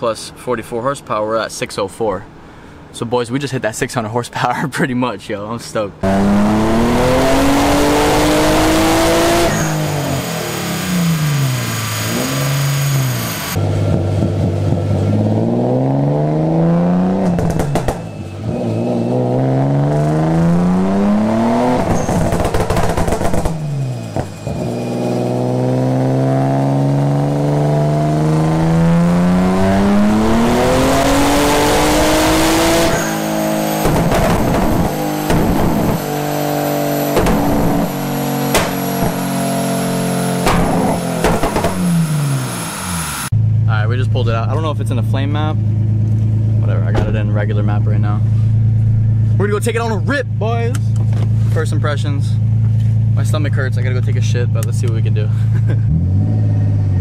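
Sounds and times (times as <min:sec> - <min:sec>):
car engine revving: 0:06.0 - 0:57.0
exhaust pops and cracks: 0:17.4 - 0:18.1, 0:21.8 - 0:24.4, 0:33.8 - 0:36.0, 0:37.1 - 0:39.3, 0:40.4 - 0:41.9.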